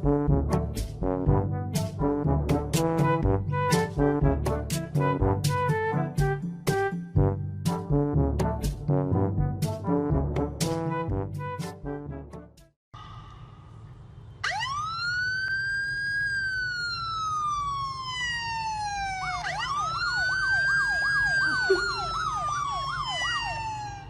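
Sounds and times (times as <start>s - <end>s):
emergency siren wailing: 14.4s - 24.0s
siren yelping: 14.4s - 24.0s.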